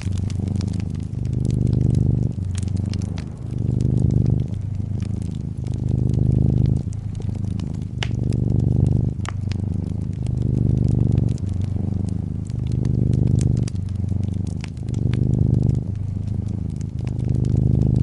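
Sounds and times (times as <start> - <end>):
cat purring: 0.0 - 18.0
fireplace fire crackling: 0.0 - 18.0.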